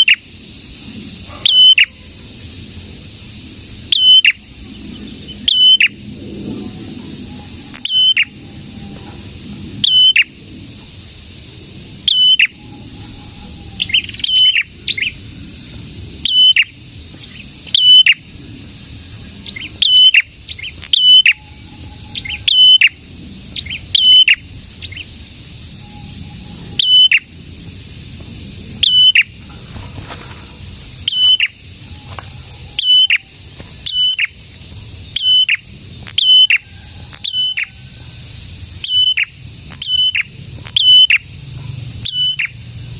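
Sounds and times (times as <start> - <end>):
songbird chirping: 1.3 - 2.1, 3.9 - 11.2, 12.0 - 27.3, 28.8 - 42.7.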